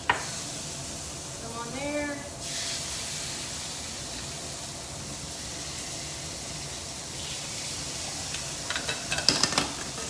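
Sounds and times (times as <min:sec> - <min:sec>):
chicken sizzling on a grill pan: 0:00.1 - 0:09.2.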